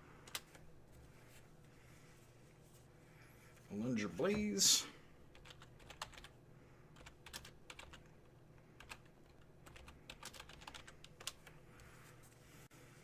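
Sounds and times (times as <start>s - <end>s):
typing on computer keyboard: 0.2s - 0.6s, 5.3s - 11.6s.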